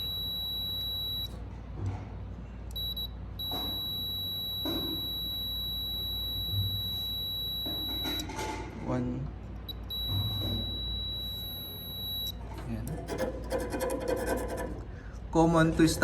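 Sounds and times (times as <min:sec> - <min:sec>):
multimeter continuity buzzer beeping: 0:00.0 - 0:01.4, 0:02.7 - 0:08.3, 0:09.7 - 0:12.4.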